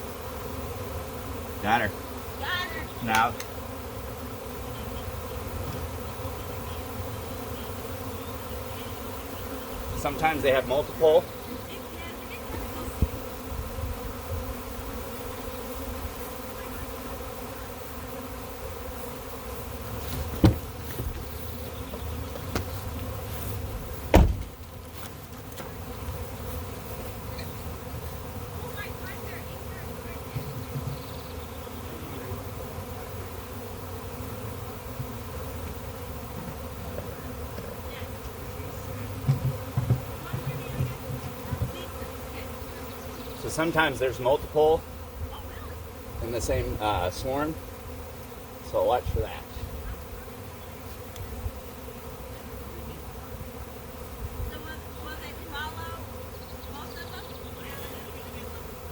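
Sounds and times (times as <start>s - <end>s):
bee swarm buzzing: 0.0s - 58.9s
low bumps: 19.9s - 25.8s
sharp knocks: 20.1s - 21.3s, 24.1s - 24.6s.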